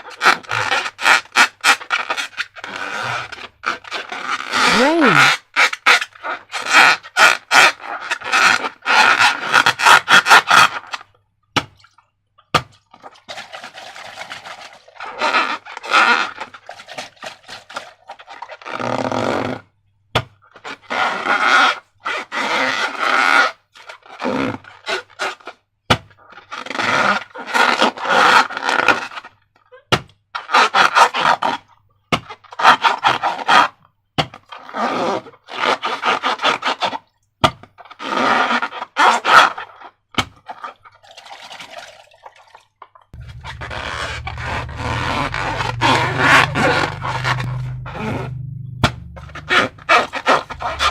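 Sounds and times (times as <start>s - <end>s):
slime squelching and crackling: 43.2s - 50.9s.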